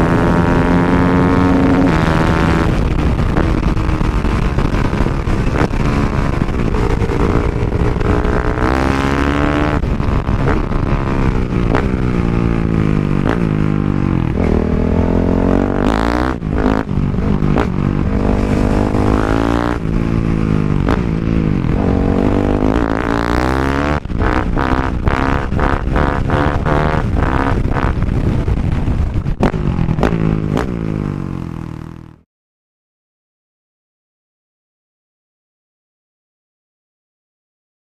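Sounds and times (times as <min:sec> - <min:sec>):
motorcycle engine revving: 0:00.0 - 0:32.2.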